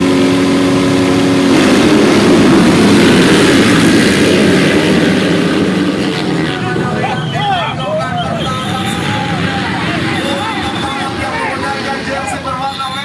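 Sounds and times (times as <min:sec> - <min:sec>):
motocross bikes racing: 0:00.0 - 0:13.0.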